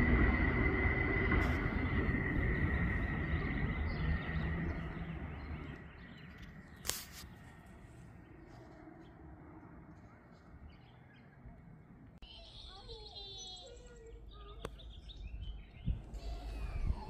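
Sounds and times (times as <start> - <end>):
steady high-pitched tone: 0.0 - 6.0
freight train rumbling: 0.0 - 10.7, 13.5 - 17.0.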